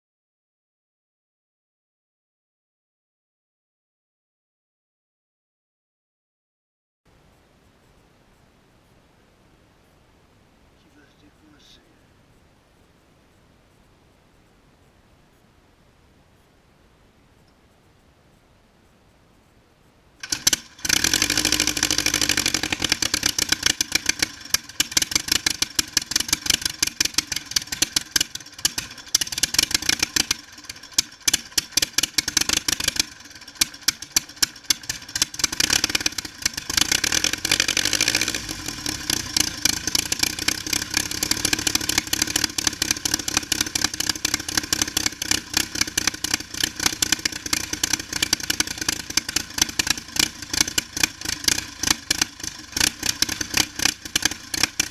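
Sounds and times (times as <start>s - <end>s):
aircraft engine running: 20.2s - 54.9s.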